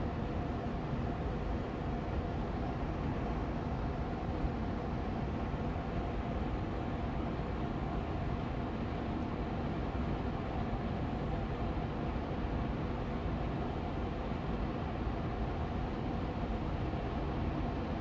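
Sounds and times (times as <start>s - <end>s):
air purifier fan running: 0.0s - 18.0s.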